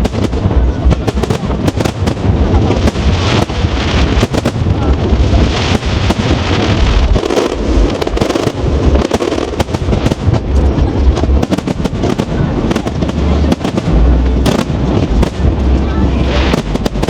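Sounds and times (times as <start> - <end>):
fireworks booming and cracking: 0.0 - 17.0.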